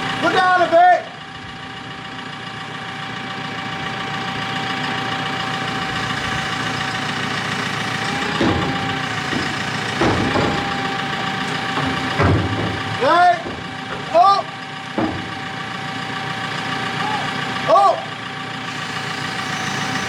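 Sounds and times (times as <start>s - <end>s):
lifting machine engine whining: 0.0s - 20.0s
short knocks: 7.9s - 15.8s.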